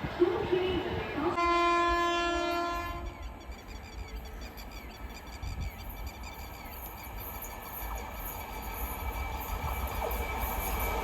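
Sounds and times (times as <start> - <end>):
train horn: 1.3 - 3.2
crickets chirping: 3.2 - 11.0.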